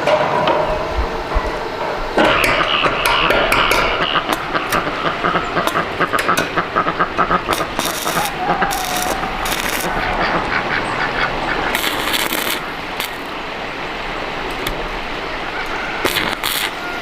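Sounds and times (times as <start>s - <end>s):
clattering metal on iron frame: 0.0s - 6.6s
steady rushing noise: 0.0s - 17.0s.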